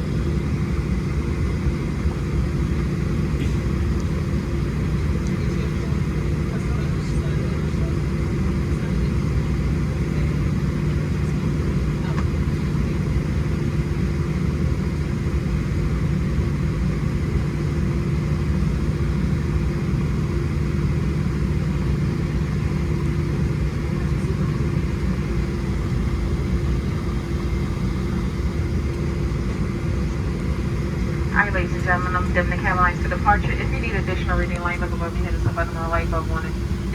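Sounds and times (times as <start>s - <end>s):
aircraft cabin drone: 0.0s - 36.9s.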